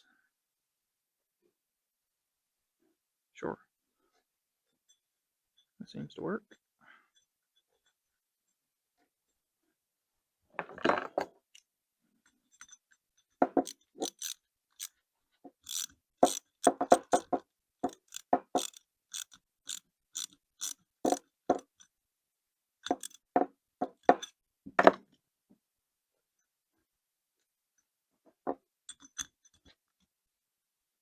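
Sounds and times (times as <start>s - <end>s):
metal parts clicking and knocking: 10.6s - 21.9s, 22.8s - 25.0s, 28.5s - 30.1s.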